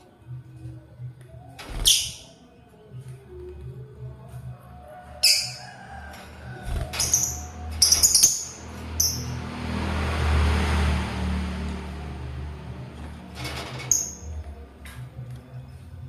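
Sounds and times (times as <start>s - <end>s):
lovebirds chirping: 6.8s - 9.4s.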